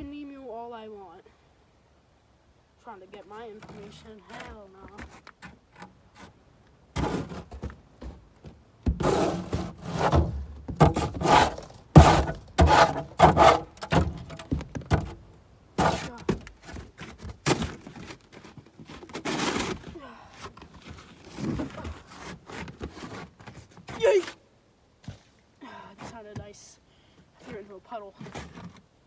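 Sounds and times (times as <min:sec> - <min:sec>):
items thunking and scraping: 0:03.6 - 0:24.1, 0:28.2 - 0:28.9.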